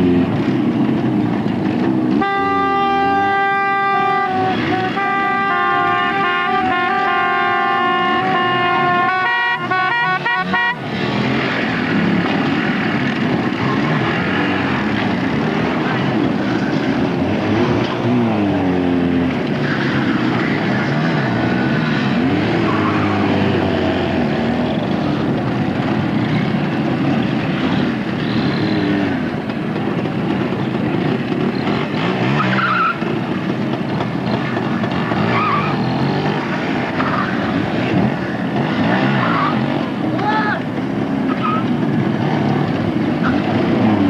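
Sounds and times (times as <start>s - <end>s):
motorcycle engines revving: 0.0s - 44.0s.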